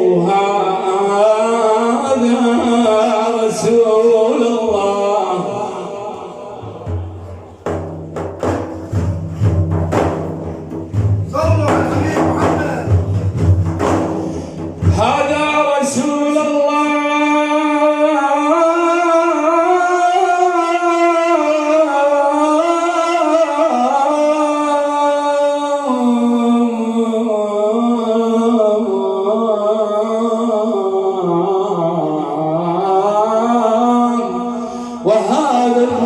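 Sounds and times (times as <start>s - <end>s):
man chanting: 0.0s - 8.0s, 11.2s - 13.6s, 14.8s - 36.0s.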